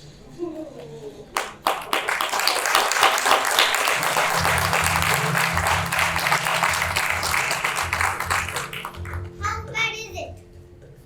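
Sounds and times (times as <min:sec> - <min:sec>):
audience applause: 0:01.4 - 0:09.4
music with low bass line: 0:04.0 - 0:09.4.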